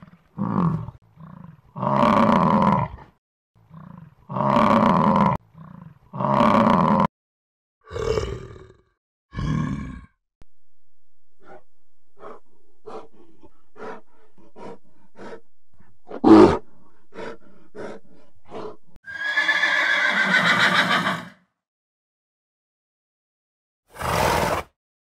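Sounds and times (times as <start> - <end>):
bear huffing grunts: 12.2 - 18.8.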